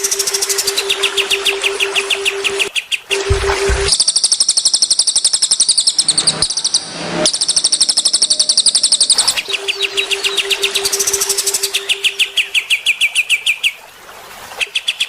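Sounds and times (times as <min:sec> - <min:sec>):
high sharp songbird chirps: 0:03.9 - 0:13.0
lower bird trill: 0:04.0 - 0:12.9.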